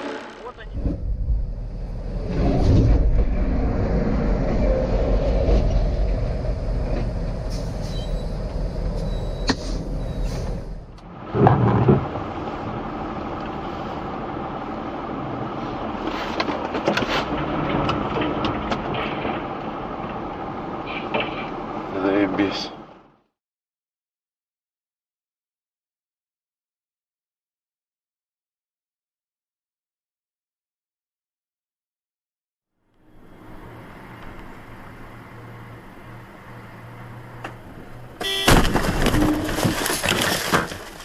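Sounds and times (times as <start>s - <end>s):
vehicle driving rumble: 0.0s - 23.2s, 33.0s - 41.0s.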